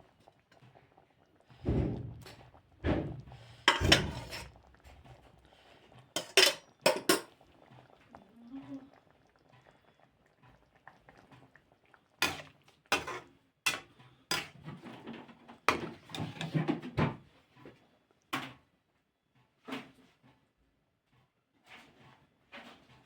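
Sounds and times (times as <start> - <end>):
kitchen utensils clattering: 3.0 - 4.6, 6.2 - 7.3, 12.2 - 17.2.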